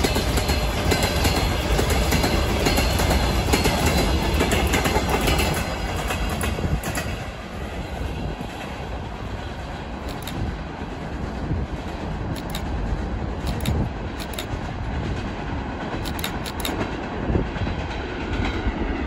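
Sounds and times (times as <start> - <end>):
train wheels knocking over rail joints: 0.0 - 7.4, 16.0 - 18.7
freight train rumble: 0.0 - 19.0.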